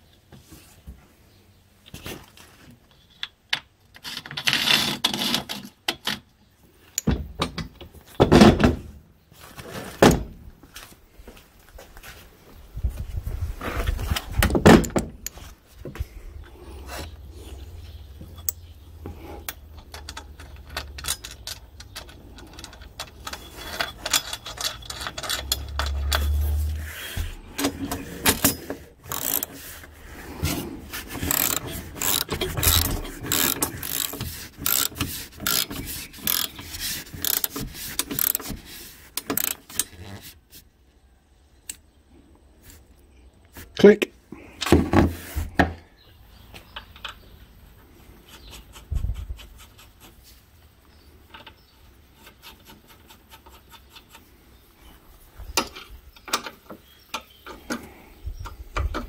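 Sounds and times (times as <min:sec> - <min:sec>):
ratchet wrench clicking: 0:29.1 - 0:29.5, 0:31.2 - 0:38.5, 0:39.2 - 0:40.0.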